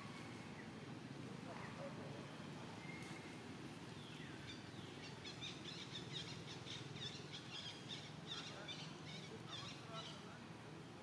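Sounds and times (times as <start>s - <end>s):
small birds chirping: 2.8s - 11.0s.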